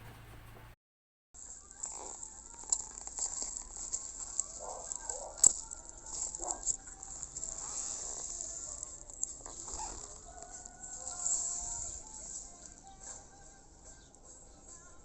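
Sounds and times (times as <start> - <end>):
food sizzling and crackling: 1.4 - 13.2.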